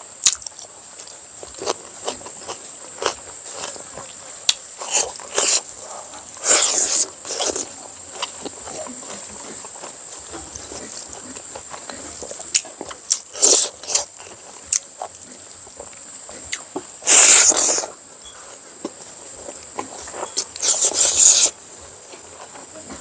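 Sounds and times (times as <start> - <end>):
chewing: 0.0 - 23.0
loud biting or slurping: 4.5 - 9.9, 10.7 - 15.2, 16.4 - 18.0, 19.8 - 21.6.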